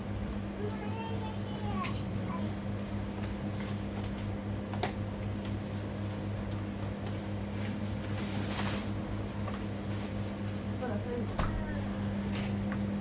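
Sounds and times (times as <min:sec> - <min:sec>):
machine humming: 0:11.2 - 0:13.0.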